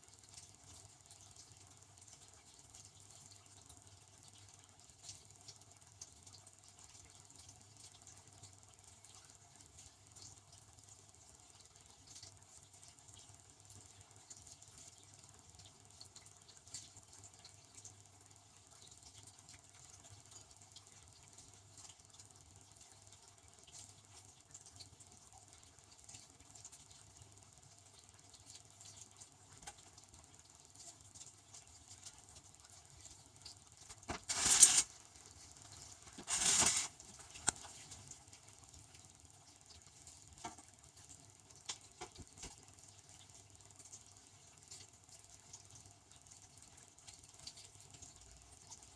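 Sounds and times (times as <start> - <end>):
dishwasher pump motor hum: 0.0 - 48.9
water spraying inside dishwasher: 33.8 - 38.1.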